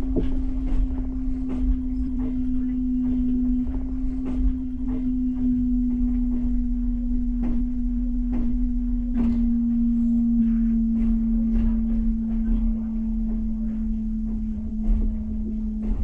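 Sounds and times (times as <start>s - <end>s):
low rumble: 0.0s - 16.0s
train humming tone: 0.0s - 16.0s.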